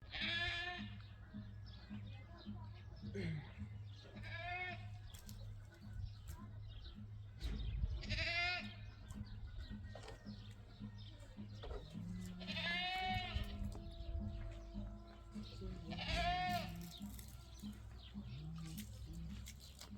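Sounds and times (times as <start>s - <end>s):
livestock bleating: 0.0s - 1.0s, 4.2s - 5.0s, 8.0s - 8.8s, 12.0s - 19.6s.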